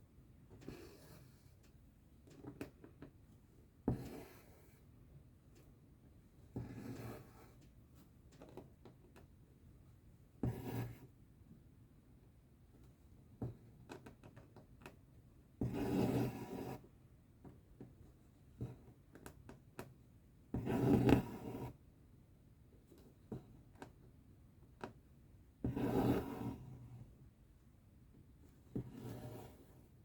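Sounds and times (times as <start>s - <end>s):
thread rasping through fabric: 25.6s - 26.8s.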